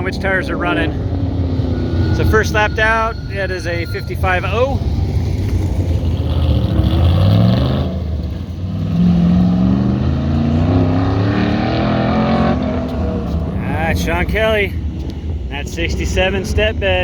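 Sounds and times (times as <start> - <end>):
race car engine accelerating: 0.0 - 14.8.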